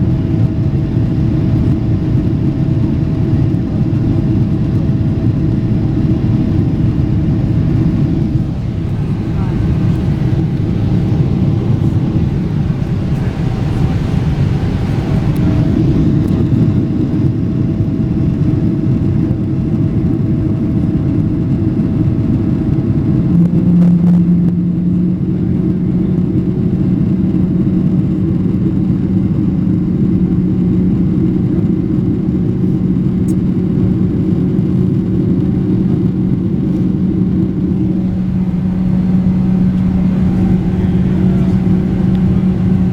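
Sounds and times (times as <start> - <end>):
aircraft engine and airflow rumble: 0.0 - 42.9
steady low hum: 0.0 - 42.9.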